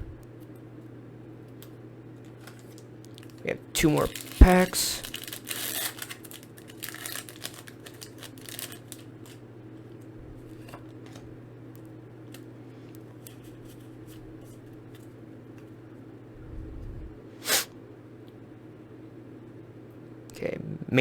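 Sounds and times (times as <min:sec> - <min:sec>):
steady low hum: 0:00.0 - 0:21.0
foil pack crinkling: 0:02.2 - 0:09.4.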